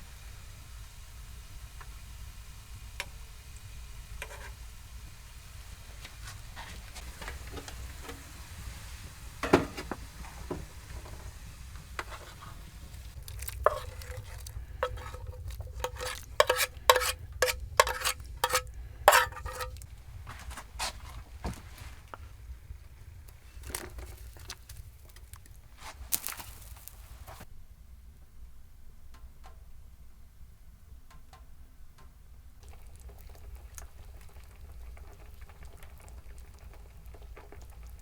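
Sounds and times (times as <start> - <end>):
spoon tapping and scraping cookware: 9.4 - 11.2, 12.0 - 12.6, 13.3 - 19.9
spoon clinking against metal pot: 13.6 - 19.8.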